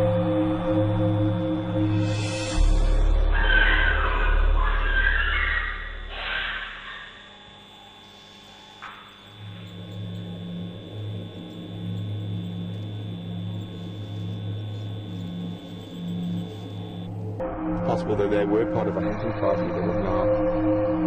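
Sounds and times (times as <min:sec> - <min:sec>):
low steady hum: 0:03.3 - 0:17.4.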